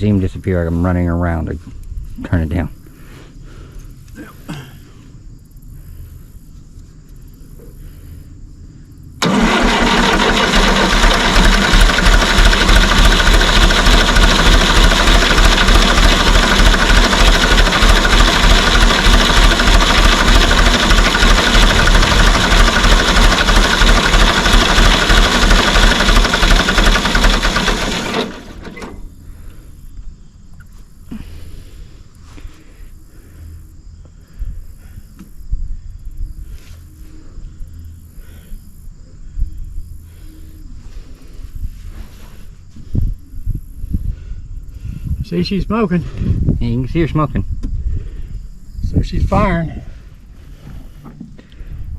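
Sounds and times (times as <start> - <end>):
tractor engine cranking by starter: 9.2 - 29.6.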